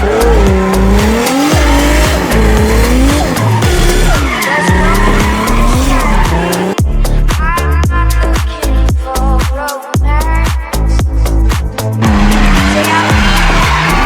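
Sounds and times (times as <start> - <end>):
tyres squealing: 0.0 - 6.8
car engine revving: 0.0 - 7.2, 11.7 - 14.0
music with heavy bass beat: 0.0 - 14.0.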